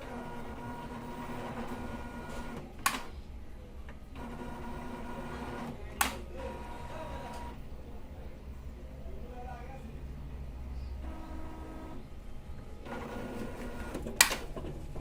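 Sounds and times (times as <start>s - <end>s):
printer motor whirring: 0.0s - 7.6s, 11.0s - 12.2s, 12.8s - 15.0s
printer sharp clicks: 1.5s - 3.2s, 5.3s - 6.4s, 12.9s - 14.7s.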